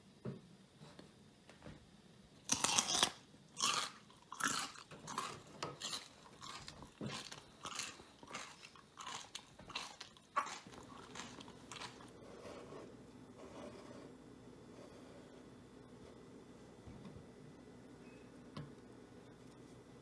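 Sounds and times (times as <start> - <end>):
person crunching raw potato: 2.4 - 12.2.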